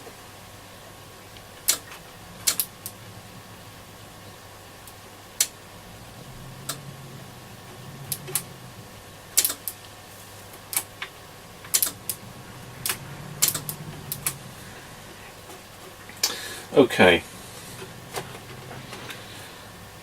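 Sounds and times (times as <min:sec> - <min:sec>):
faint steady hum: 0:00.0 - 0:20.0
small parts clicking and tapping: 0:01.6 - 0:03.0, 0:09.4 - 0:09.9, 0:10.5 - 0:12.2.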